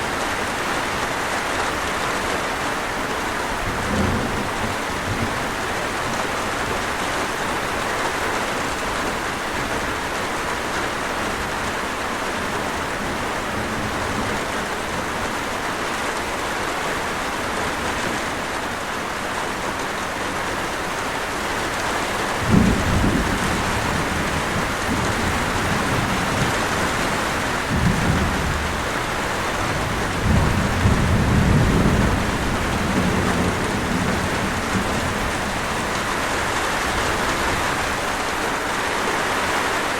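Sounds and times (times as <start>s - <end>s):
heavy rain falling: 0.0s - 39.9s
thunder rumbling: 3.5s - 5.7s, 22.3s - 38.4s
sharp thunder clap: 22.4s - 35.9s.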